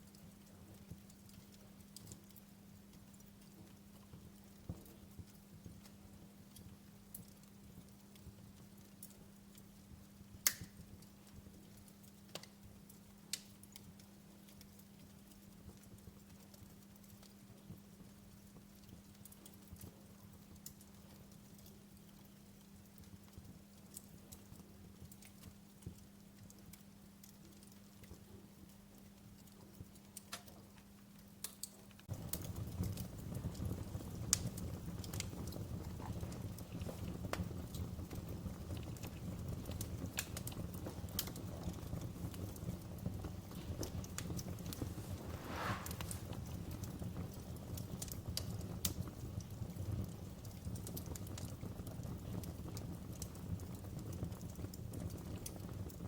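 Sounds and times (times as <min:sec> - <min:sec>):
wood fire crackling: 0:00.0 - 0:56.0
low steady rumble: 0:44.7 - 0:46.4.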